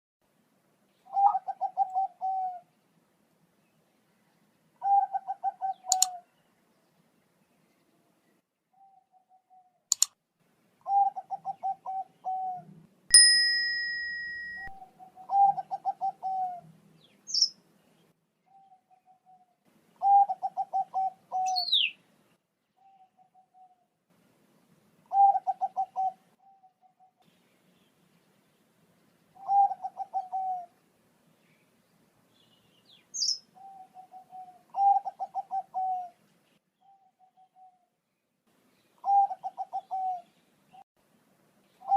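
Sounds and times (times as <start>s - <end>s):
dove cooing: 1.1s - 2.7s, 4.8s - 6.2s, 10.8s - 12.8s, 14.8s - 16.7s, 18.5s - 21.9s, 25.1s - 27.2s, 29.4s - 30.8s, 33.6s - 36.2s, 39.0s - 40.3s
small bird chirps: 3.7s - 6.6s, 14.1s - 22.0s, 32.4s - 36.1s
bell-like ding: 13.1s - 14.8s.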